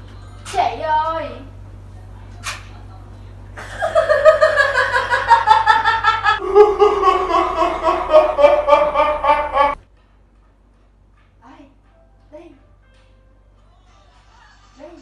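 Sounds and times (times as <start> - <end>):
high-pitched laughter: 3.6 - 9.8.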